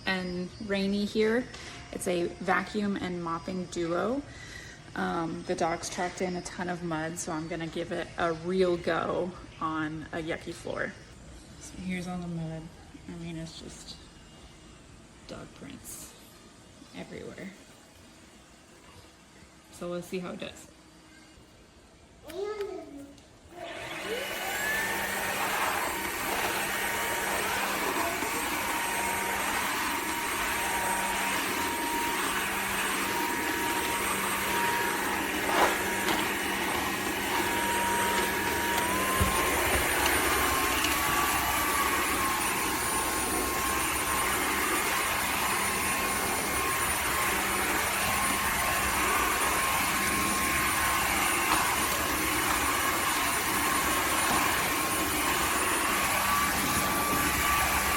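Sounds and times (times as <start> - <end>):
vacuum mop motor whine: 0.0 - 9.2, 23.5 - 57.9.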